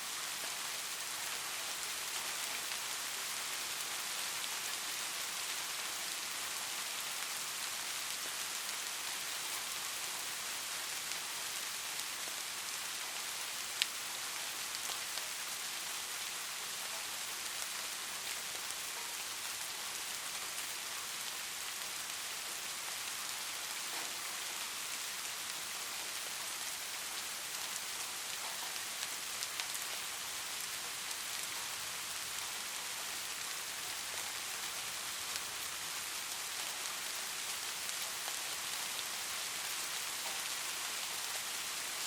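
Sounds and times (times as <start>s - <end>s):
light rain hiss: 0.0s - 42.0s
ticks of single raindrops: 13.6s - 14.0s.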